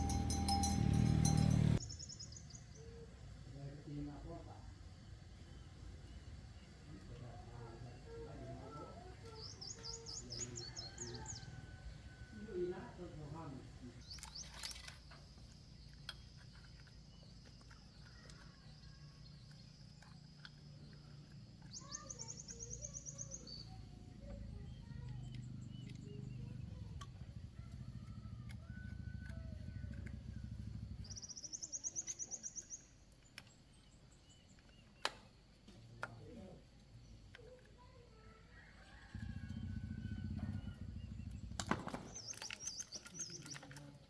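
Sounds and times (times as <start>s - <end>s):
low engine rumble: 0.0s - 1.9s, 21.0s - 31.5s, 38.9s - 42.2s
birds chirping: 0.0s - 3.5s, 5.3s - 44.0s.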